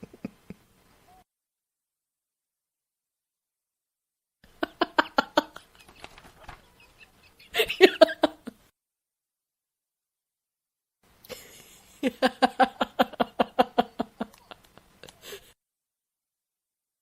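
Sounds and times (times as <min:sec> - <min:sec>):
woman laughing: 0:00.0 - 0:00.6, 0:04.5 - 0:08.6, 0:11.3 - 0:15.6.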